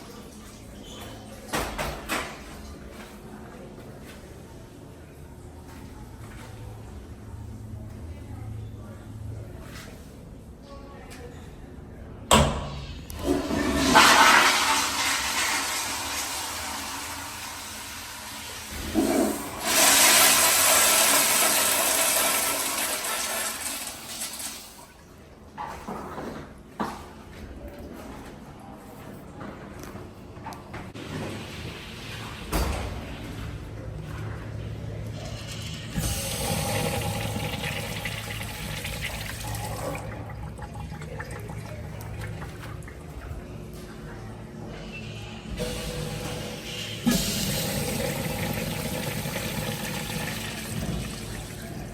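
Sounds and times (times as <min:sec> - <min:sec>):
toilet flushing: 0:12.7 - 0:25.0, 0:35.0 - 0:44.3, 0:45.1 - 0:51.9.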